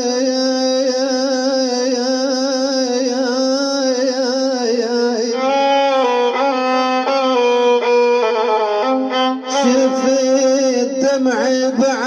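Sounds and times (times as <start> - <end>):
man singing with vibrato: 0.0 - 8.4, 9.4 - 12.0
instrumental phrase: 5.3 - 12.0.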